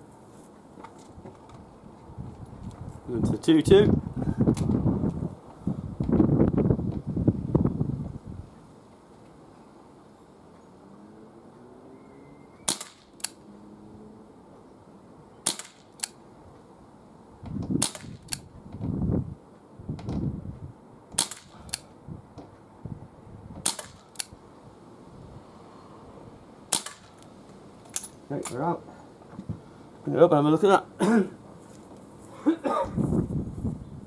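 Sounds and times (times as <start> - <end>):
air pistol shots: 12.7 - 13.4, 15.4 - 16.2, 17.8 - 18.5, 21.2 - 21.9, 23.6 - 24.3, 26.7 - 27.2.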